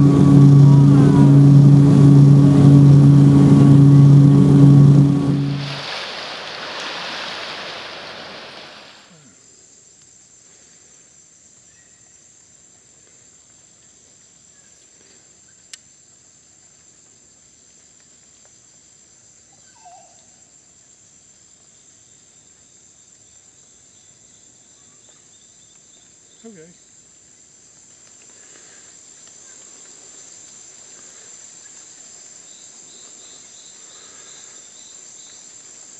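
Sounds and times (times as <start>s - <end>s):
loud rushing noise: 0.0s - 9.1s
short falling call: 0.0s - 9.2s
insects calling in chorus: 19.4s - 20.8s, 22.5s - 35.9s.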